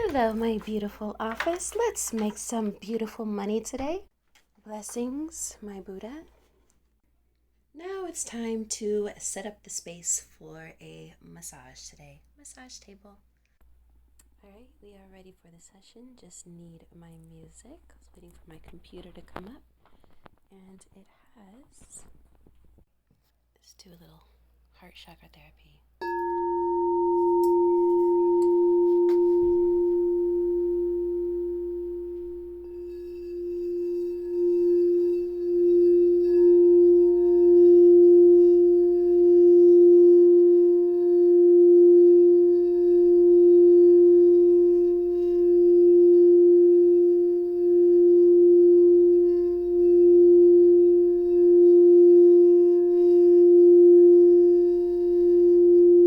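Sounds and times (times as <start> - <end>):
singing bowl ringing: 26.0 - 56.0.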